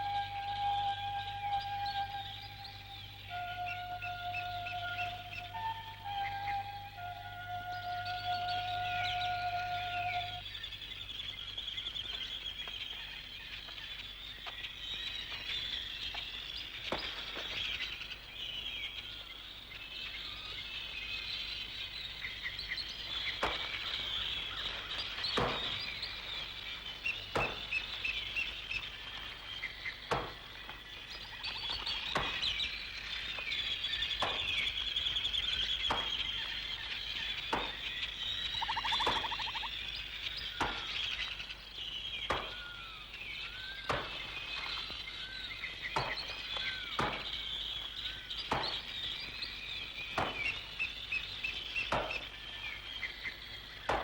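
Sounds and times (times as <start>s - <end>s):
birdsong: 0.0s - 54.0s
axe chopping wood: 51.9s - 52.2s.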